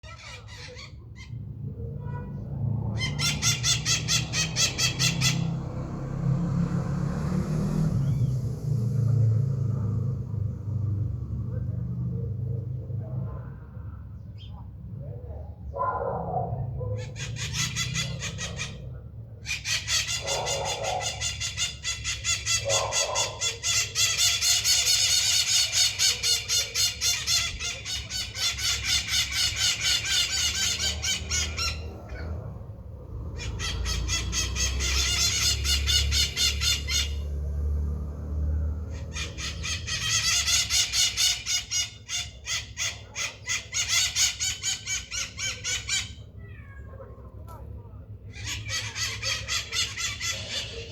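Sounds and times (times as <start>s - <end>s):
parrots screeching: 0.0s - 1.5s, 2.4s - 6.2s, 16.5s - 37.5s, 38.7s - 47.1s, 48.3s - 50.9s.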